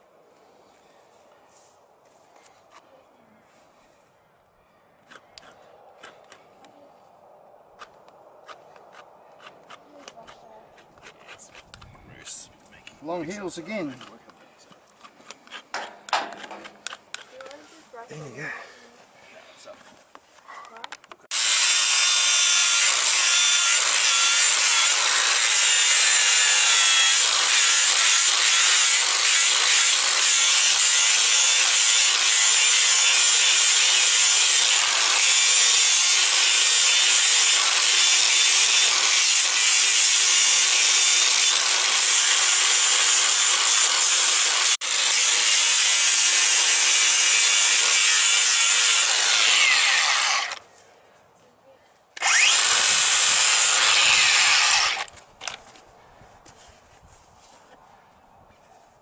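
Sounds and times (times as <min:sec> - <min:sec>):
power grinder grinding hoof: 0:21.3 - 0:50.6, 0:52.2 - 0:55.6.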